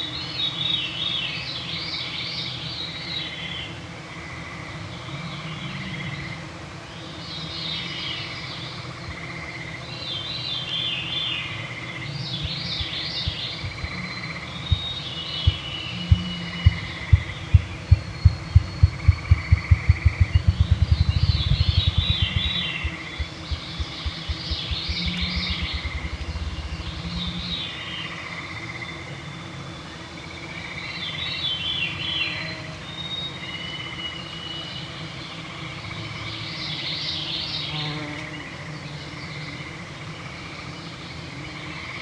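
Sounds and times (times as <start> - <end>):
songbirds singing: 7.0 - 42.0
loud low thumps fluttering: 12.4 - 14.0, 14.6 - 27.8
treefrog trills: 12.8 - 29.0.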